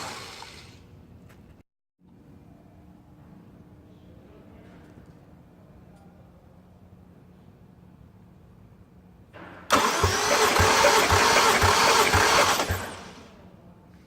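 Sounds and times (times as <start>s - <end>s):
car engine starter cranking: 9.7s - 13.3s.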